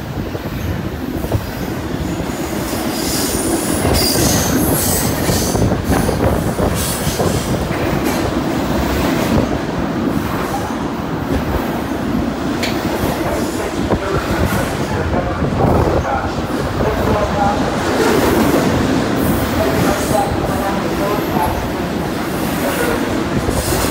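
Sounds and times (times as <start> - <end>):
train wheels clacking on rails: 1.3 - 14.9, 16.8 - 23.9.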